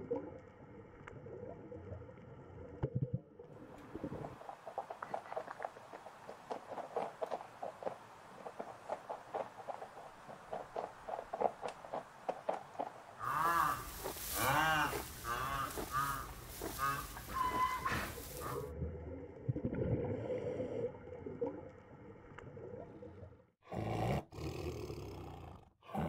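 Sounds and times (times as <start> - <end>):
rhinoceros moaning calls: 13.2 - 18.7.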